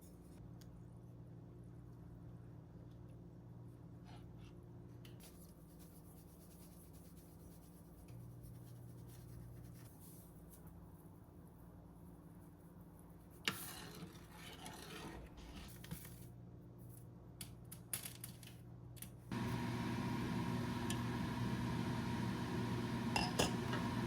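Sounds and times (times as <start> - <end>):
kitchen appliance motor humming: 19.3 - 24.0.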